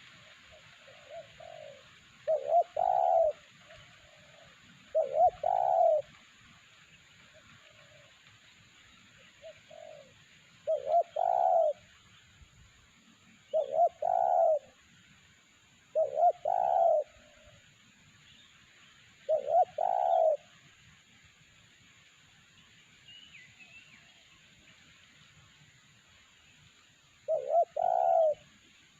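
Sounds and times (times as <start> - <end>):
dove cooing: 0.0 - 6.2, 9.4 - 11.9, 13.5 - 14.8, 15.9 - 17.6, 19.2 - 20.6, 27.2 - 28.6.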